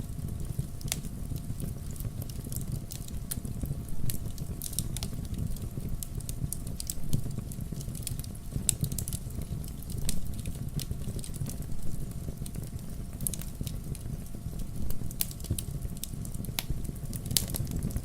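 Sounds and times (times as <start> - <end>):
fire rumbling: 0.0 - 18.0
logs crackling and popping: 0.0 - 18.0.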